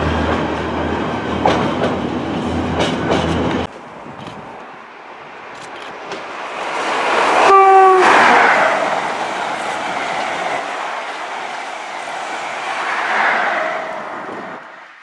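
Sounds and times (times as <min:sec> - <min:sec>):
train passing at speed: 0:00.0 - 0:15.0
train horn blast: 0:07.4 - 0:08.8.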